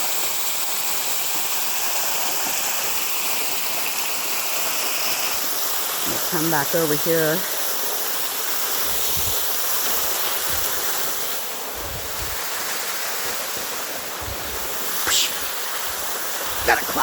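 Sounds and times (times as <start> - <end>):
waterfall rushing: 8.8 - 17.0.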